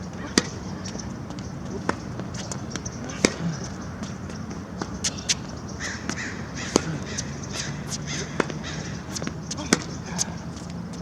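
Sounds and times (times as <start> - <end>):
ball bouncing on court: 1.8 - 7.2, 7.8 - 10.0
tennis ball racket hits: 2.7 - 3.6, 4.8 - 10.3.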